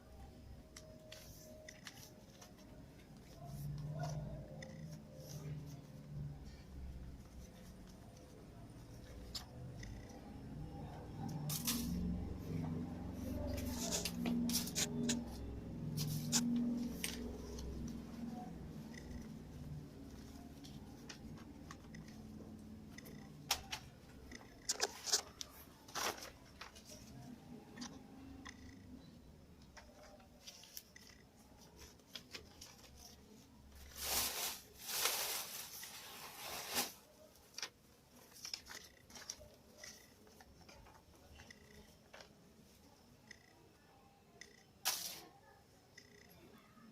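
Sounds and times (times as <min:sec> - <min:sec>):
low steady hum: 0:00.0 - 0:44.6
paper folding and crackling: 0:31.6 - 0:41.0.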